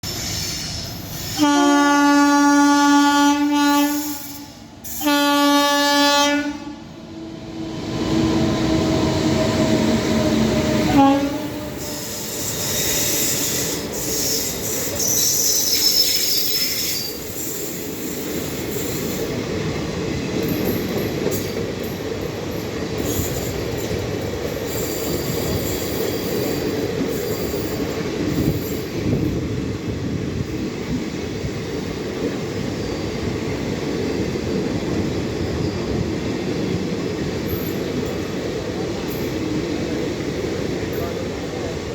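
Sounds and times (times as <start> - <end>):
train wheels rumbling on rails: 0.0 - 41.9
high-pitched wheel squeal: 11.7 - 17.9.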